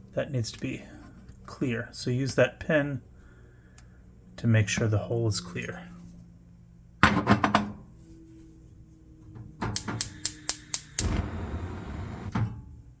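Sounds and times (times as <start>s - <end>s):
gas igniter clicking: 9.8s - 12.3s
burner flame: 9.8s - 12.4s.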